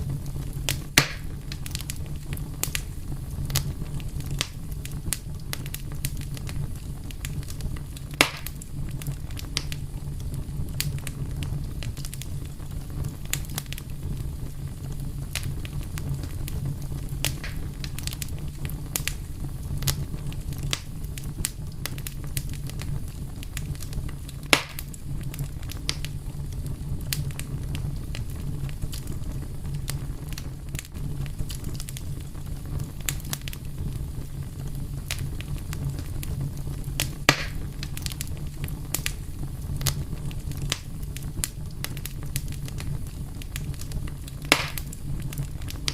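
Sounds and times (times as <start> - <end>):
wood fire crackling: 0.0 - 45.9.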